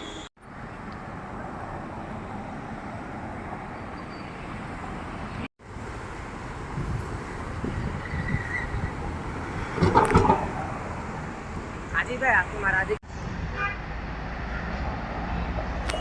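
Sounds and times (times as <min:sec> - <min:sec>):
passing cars: 0:00.0 - 0:16.0.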